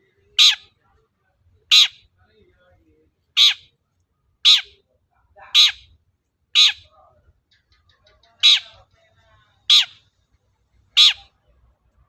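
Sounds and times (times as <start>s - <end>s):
bird giving harsh calls: 0.3s - 0.8s, 1.7s - 2.1s, 3.3s - 3.7s, 4.4s - 4.8s, 5.5s - 6.9s, 8.3s - 8.9s, 9.6s - 10.1s, 10.9s - 11.4s.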